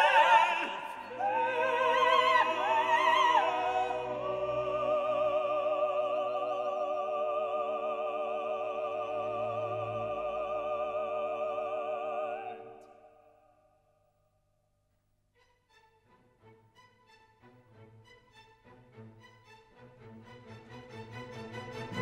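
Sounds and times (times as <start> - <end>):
operatic singing: 0.0 - 13.4.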